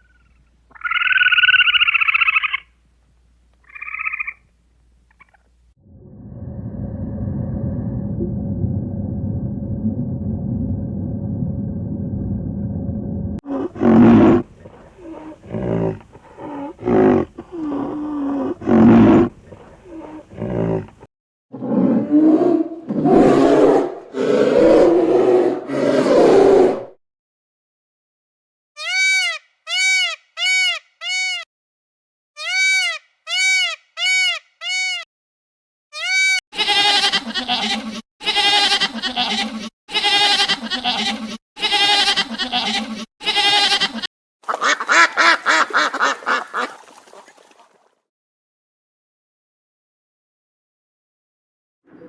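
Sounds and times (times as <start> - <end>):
farm animal calls: 0.0 - 2.7.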